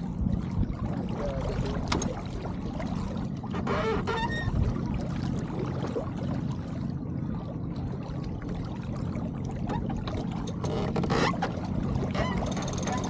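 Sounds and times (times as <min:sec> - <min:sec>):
water sloshing along hull: 0:00.0 - 0:13.0.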